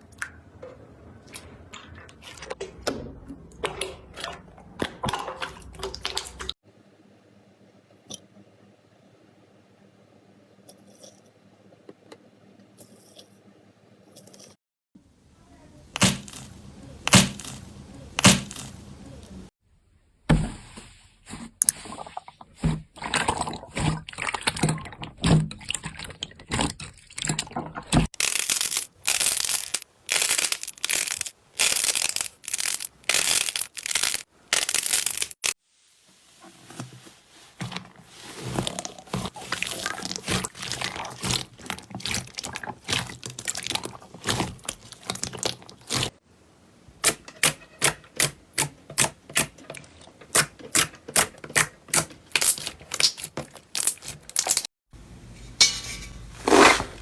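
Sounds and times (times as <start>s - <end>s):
crunchy tearing bursts: 17.1s - 18.8s, 28.2s - 35.6s.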